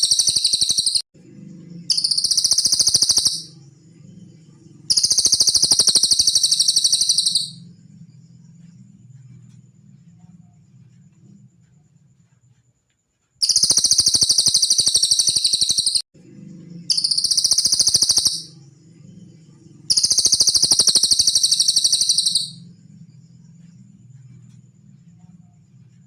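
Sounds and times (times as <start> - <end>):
bird song high-pitched trills: 0.0 - 8.8, 13.4 - 23.8.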